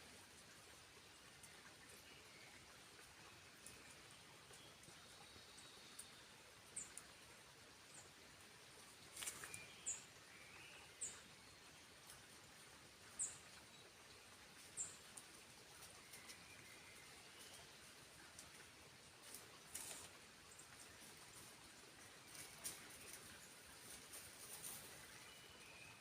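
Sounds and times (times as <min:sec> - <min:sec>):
faint steady hiss: 0:00.0 - 0:26.0
bird chirping: 0:24.6 - 0:26.0.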